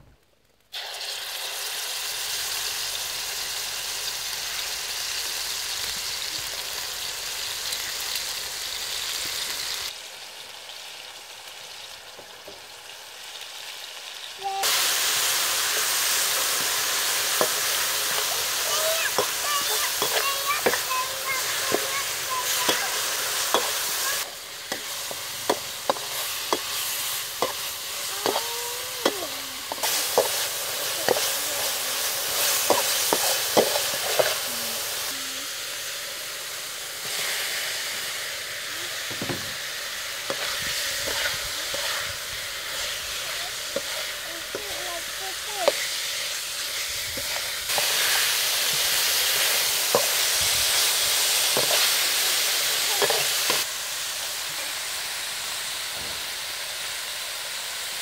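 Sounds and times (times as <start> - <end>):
fish frying: 0.3 - 58.0
paste sizzling in a wok: 0.6 - 58.0
metal spatula scraping a pan: 24.7 - 28.5, 40.3 - 43.0.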